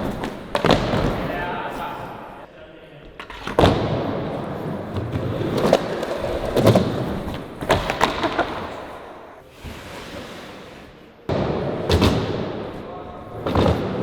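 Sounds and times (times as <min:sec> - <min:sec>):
skateboard clacks and thuds: 0:00.0 - 0:01.4, 0:03.2 - 0:09.2, 0:11.3 - 0:12.7, 0:13.3 - 0:14.0
skateboard wheels rolling: 0:00.0 - 0:02.4, 0:03.2 - 0:14.0.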